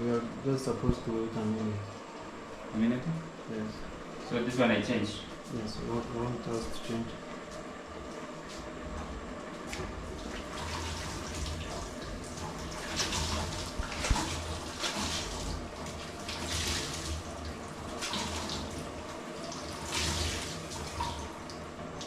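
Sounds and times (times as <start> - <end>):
tap water running and splashing: 9.0 - 22.0.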